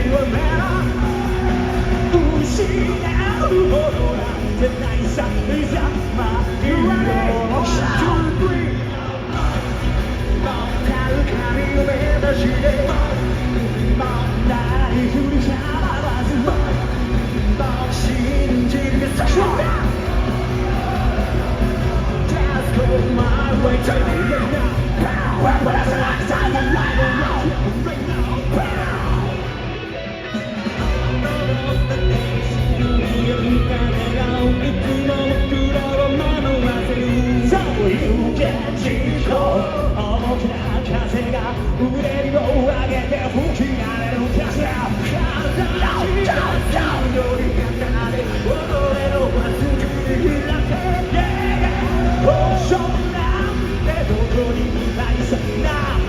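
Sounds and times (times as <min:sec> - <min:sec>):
people singing: 0:00.0 - 0:29.6, 0:32.8 - 0:56.0
live rock band playing: 0:00.0 - 0:56.0
people shouting: 0:19.0 - 0:22.8.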